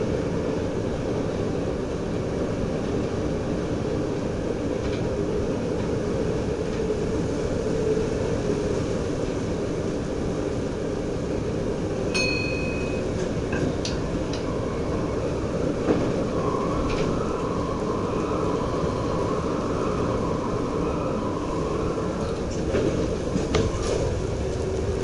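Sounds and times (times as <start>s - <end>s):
railcar rumbling along track: 0.0s - 25.0s.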